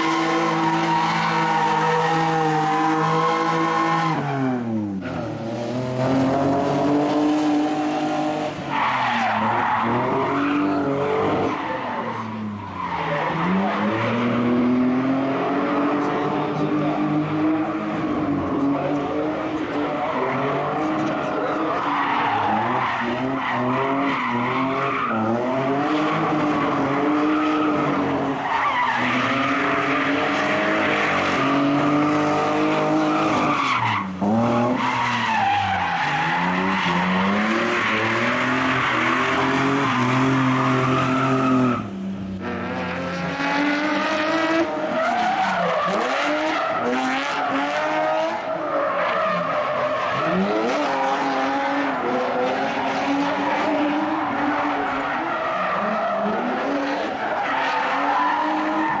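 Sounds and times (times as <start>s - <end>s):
car engines revving: 0.0s - 59.0s
tyres skidding and screeching: 0.0s - 59.0s.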